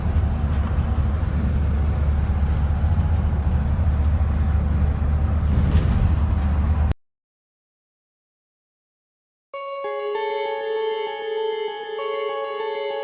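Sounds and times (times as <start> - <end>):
road traffic rumble: 0.0 - 7.0.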